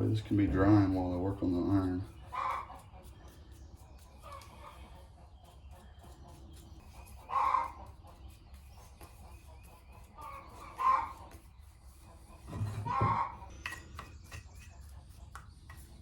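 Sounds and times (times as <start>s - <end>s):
loud animal calls: 7.3s - 7.9s, 10.2s - 11.2s.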